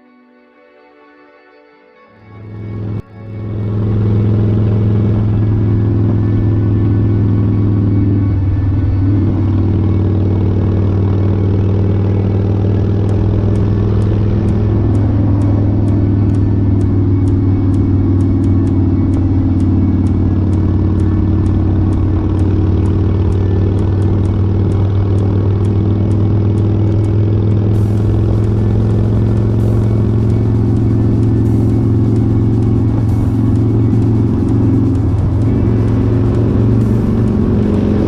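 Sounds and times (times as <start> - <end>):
road and wind noise: 2.4 - 38.0
motorcycle engine running: 2.6 - 38.0
faint ticking: 10.9 - 38.0.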